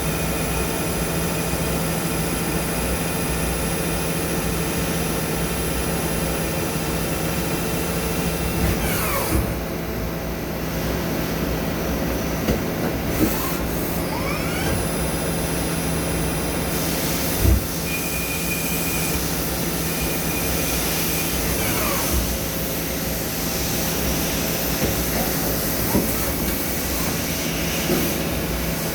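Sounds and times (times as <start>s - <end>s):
machine tool cutting metal: 21.0s - 22.4s.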